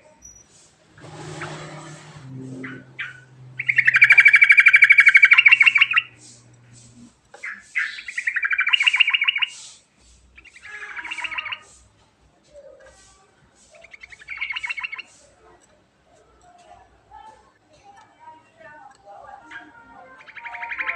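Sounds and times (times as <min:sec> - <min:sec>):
bird singing trilled phrases: 0:02.2 - 0:06.3, 0:07.4 - 0:09.6, 0:10.4 - 0:11.7, 0:13.8 - 0:15.1, 0:19.4 - 0:20.9.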